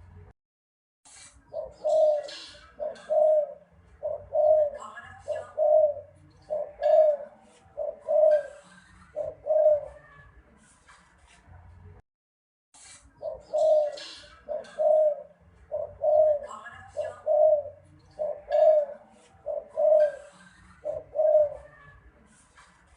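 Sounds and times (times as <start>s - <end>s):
dove cooing: 1.5s - 10.2s, 13.2s - 22.1s.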